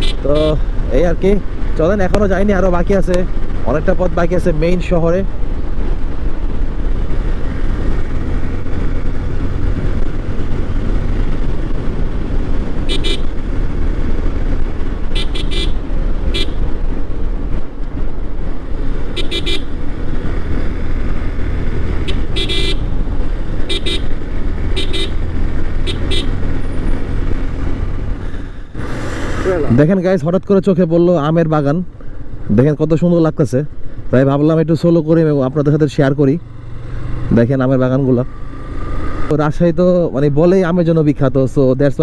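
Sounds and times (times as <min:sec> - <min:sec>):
short horn beeps: 0:00.0 - 0:00.6, 0:12.9 - 0:13.3, 0:15.2 - 0:16.6, 0:19.2 - 0:19.7, 0:22.0 - 0:22.9, 0:23.7 - 0:24.1, 0:24.8 - 0:25.2, 0:25.9 - 0:26.4
motorcycle riding at speed: 0:00.0 - 0:30.1, 0:35.0 - 0:39.7.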